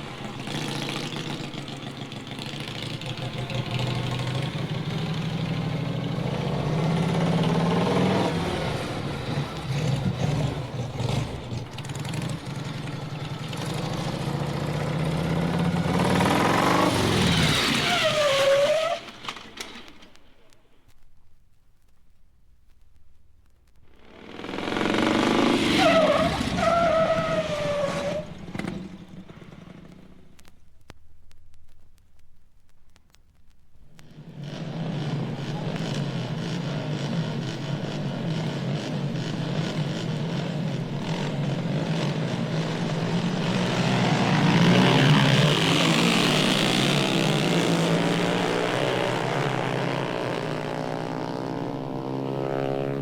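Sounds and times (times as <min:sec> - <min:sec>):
car tyres squealing in a skid: 0:15.9 - 0:19.8, 0:24.3 - 0:28.9
vinyl record pops: 0:19.1 - 0:25.0, 0:28.5 - 0:34.4.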